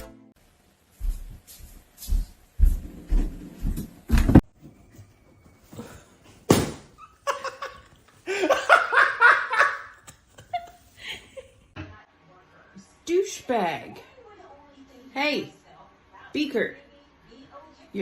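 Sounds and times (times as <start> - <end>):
person laughing hard: 7.1 - 11.6.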